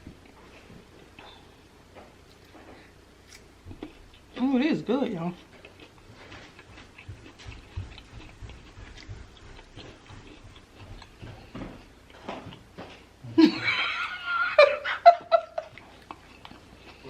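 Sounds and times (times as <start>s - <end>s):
loud laughter: 13.4s - 15.7s.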